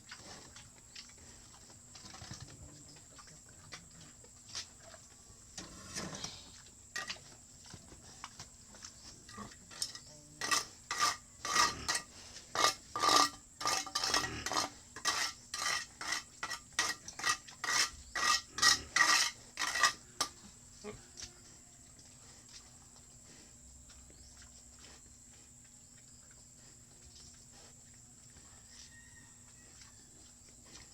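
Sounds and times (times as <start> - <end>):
rough scraping strokes: 10.4 - 20.0.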